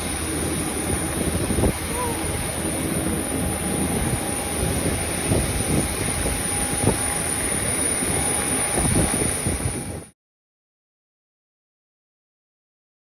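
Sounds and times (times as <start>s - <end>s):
jet aircraft whine: 0.0s - 10.2s.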